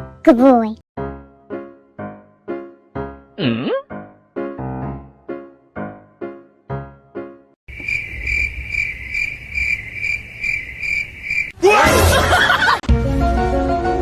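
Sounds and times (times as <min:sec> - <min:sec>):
high pulsing chirping: 0:07.7 - 0:11.6.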